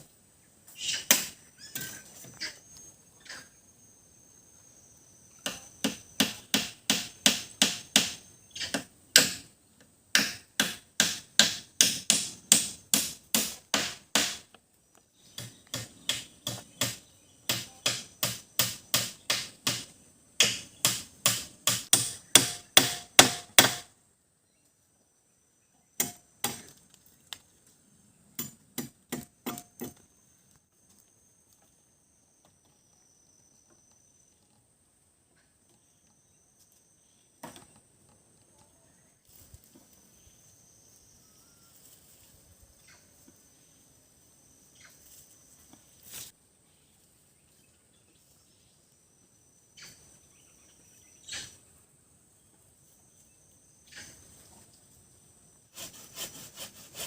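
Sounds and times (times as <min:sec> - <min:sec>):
machete striking wood: 0:05.4 - 0:09.5, 0:10.1 - 0:14.5, 0:15.4 - 0:23.9, 0:26.0 - 0:26.8, 0:28.4 - 0:30.0.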